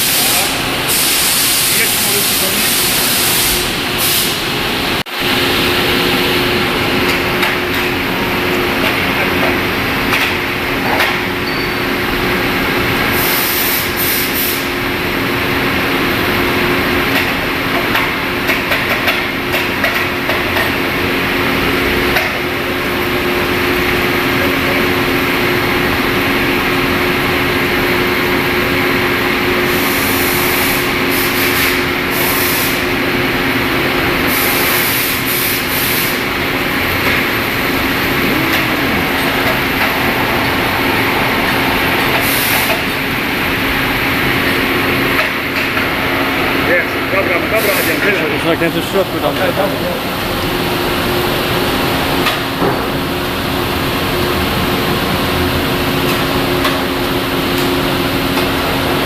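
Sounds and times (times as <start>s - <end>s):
lathe machine noise: 0.0s - 59.0s
low hums: 36.2s - 42.2s.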